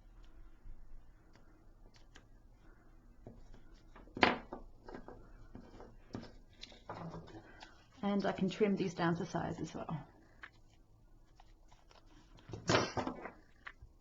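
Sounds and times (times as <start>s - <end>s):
paper pieces tapping and clicking: 3.2s - 7.8s.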